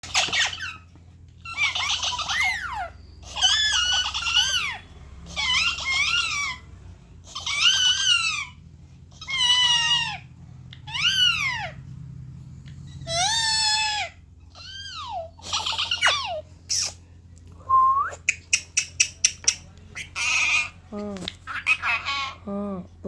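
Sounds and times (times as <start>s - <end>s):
parrot imitating laughter: 0.0s - 6.7s, 7.3s - 8.6s, 13.0s - 17.0s, 18.3s - 22.5s.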